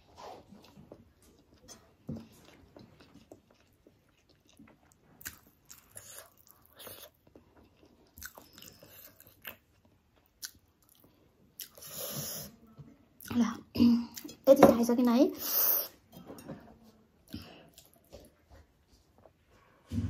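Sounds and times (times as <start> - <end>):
person chewing and smacking: 0.5 - 11.9, 17.3 - 18.4.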